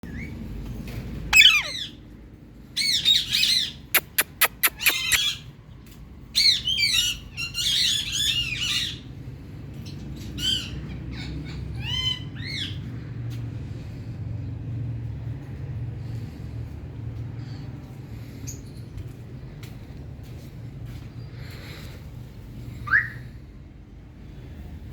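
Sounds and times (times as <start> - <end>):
parakeets squawking: 1.3 - 2.0, 2.8 - 5.4.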